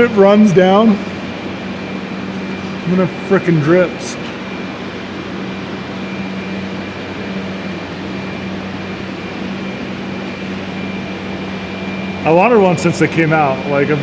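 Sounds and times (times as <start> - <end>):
heater fan blowing: 0.0 - 14.0.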